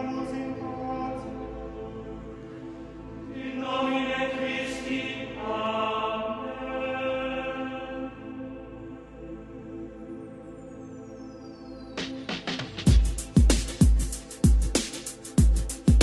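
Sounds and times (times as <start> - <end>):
chant-like held notes music: 0.0 - 16.0.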